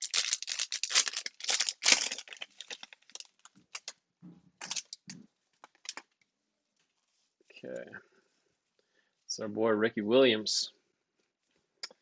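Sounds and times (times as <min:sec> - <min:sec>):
foil wrapper tearing and crinkling: 0:00.0 - 0:03.9, 0:04.6 - 0:06.0
cards rustling and clicking: 0:04.6 - 0:06.1.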